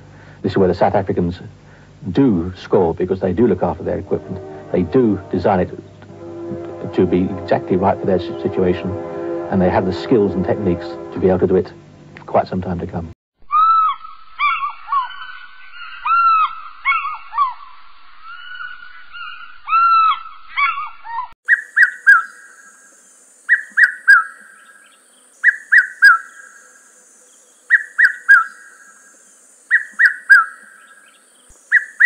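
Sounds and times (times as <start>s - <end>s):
three-note bird call: 3.4s - 11.8s.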